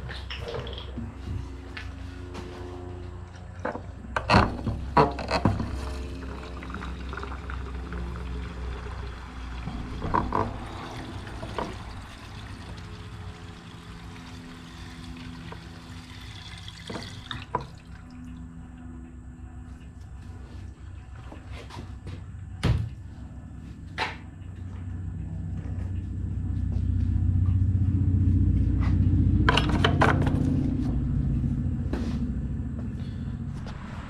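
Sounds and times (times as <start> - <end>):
gasoline pouring into tank: 5.0 - 18.3.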